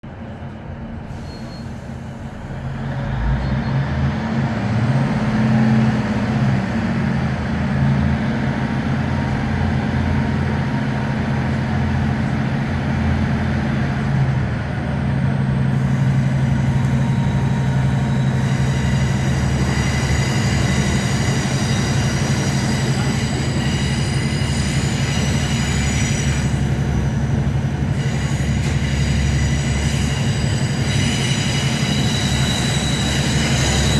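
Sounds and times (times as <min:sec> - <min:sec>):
train diesel engine under power: 0:00.0 - 0:33.9.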